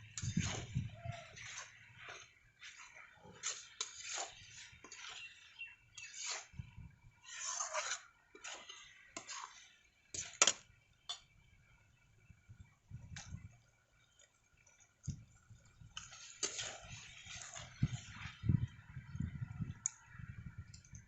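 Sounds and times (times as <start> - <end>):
metal utensil scraping a pot: 0.0 - 10.5, 16.0 - 18.4.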